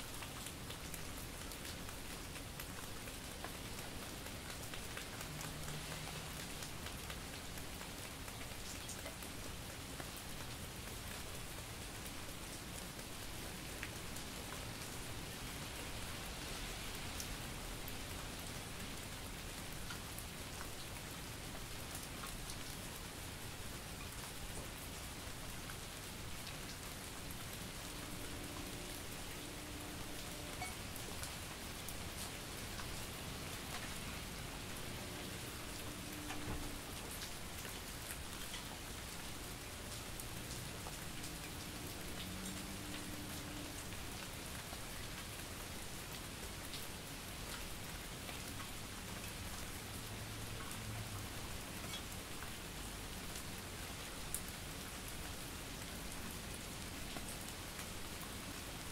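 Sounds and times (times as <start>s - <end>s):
steady rain falling: 0.0s - 58.9s
raindrops ticking: 0.1s - 12.0s, 23.8s - 45.3s.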